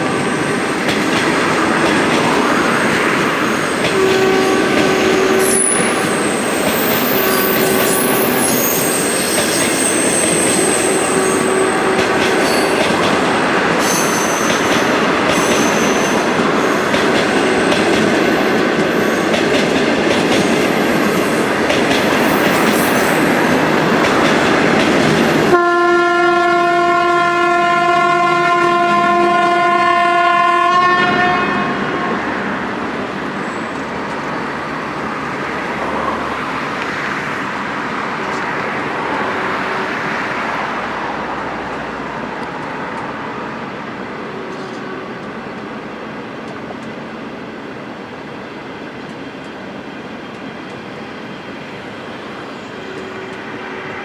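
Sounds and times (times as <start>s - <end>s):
train wheels clattering on rails: 0.0s - 25.6s
locomotive horn blast: 3.9s - 6.4s, 7.0s - 8.6s, 10.5s - 12.8s, 25.5s - 32.3s
high-pitched wheel squeals: 5.3s - 12.8s, 13.8s - 14.8s, 15.4s - 19.4s.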